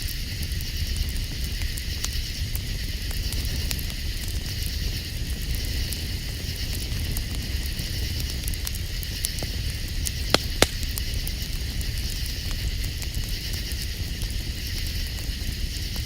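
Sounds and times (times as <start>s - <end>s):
campfire crackling: 0.0s - 16.0s
night insects chirping: 8.8s - 16.0s.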